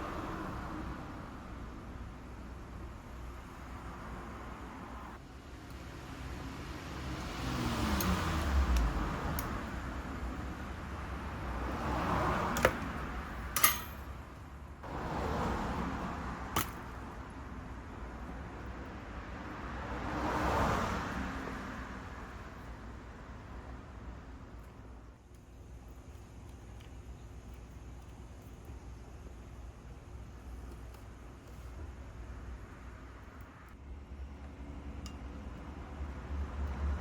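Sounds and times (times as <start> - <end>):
traffic going by: 0.0 - 37.0
small metal parts clicking: 13.5 - 14.1.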